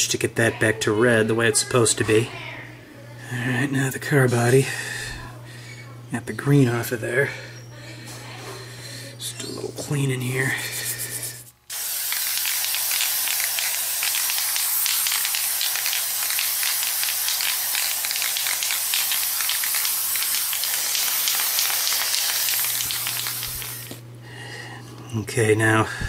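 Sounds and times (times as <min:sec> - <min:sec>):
spray paint hissing: 0:10.6 - 0:24.0.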